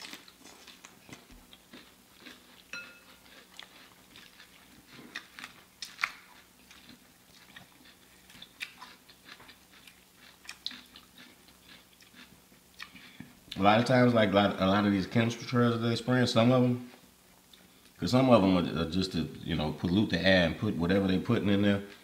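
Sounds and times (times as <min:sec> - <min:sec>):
chewing and crunching food: 0:00.0 - 0:13.9, 0:16.8 - 0:18.0.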